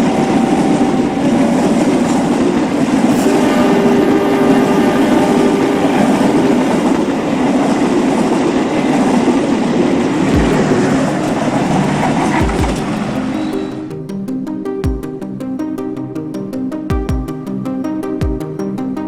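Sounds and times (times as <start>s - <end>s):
train rumble and clatter: 0.1s - 13.4s
low thuds: 10.4s - 11.1s.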